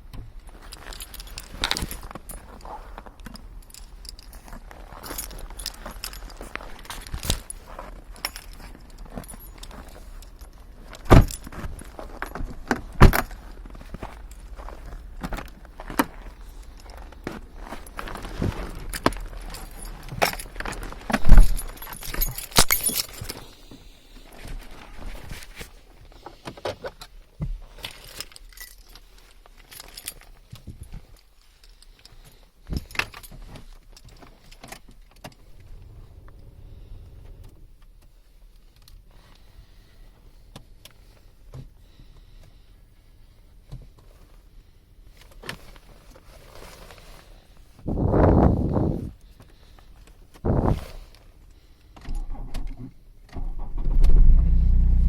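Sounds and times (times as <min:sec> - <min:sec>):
keys jangling: 0:00.5 - 0:23.6, 0:27.8 - 0:37.8.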